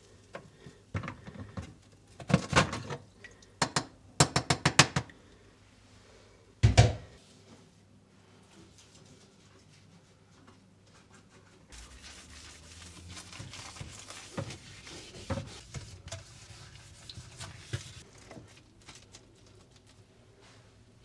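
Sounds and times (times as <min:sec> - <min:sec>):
rustling and rubbing: 0:10.9 - 0:20.7.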